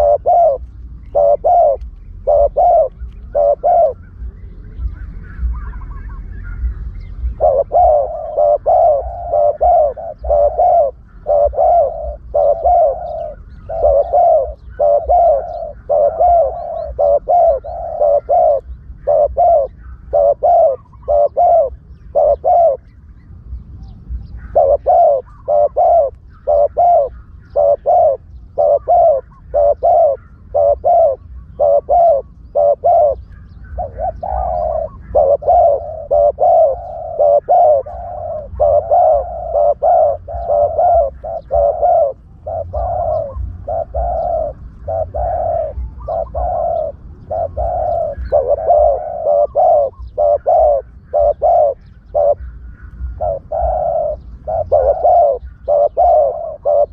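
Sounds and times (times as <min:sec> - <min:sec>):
low rumble: 0:00.0 - 0:17.0
dove cooing: 0:00.0 - 0:56.9.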